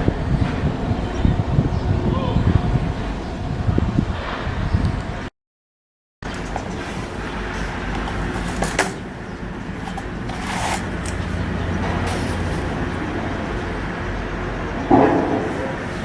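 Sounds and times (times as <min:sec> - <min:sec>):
engine-room machinery humming: 0:06.2 - 0:16.0.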